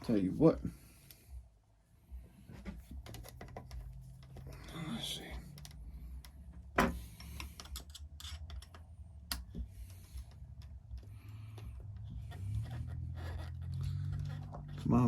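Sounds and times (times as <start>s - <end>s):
pliers and nut clicking on metal: 7.2s - 9.6s.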